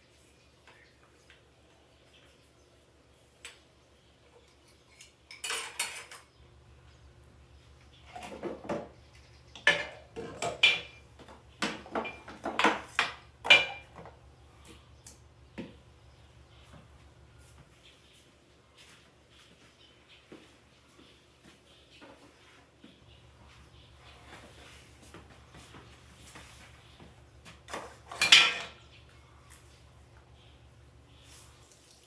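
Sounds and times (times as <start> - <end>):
dishes and cutlery clinking: 4.9 - 6.3, 9.6 - 14.0, 27.7 - 28.8.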